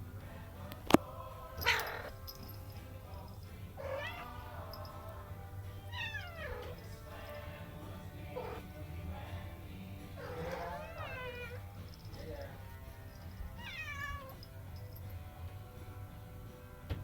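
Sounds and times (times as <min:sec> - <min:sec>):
cat meowing: 0:01.6 - 0:02.6, 0:03.8 - 0:07.6, 0:08.2 - 0:08.7, 0:10.2 - 0:14.6.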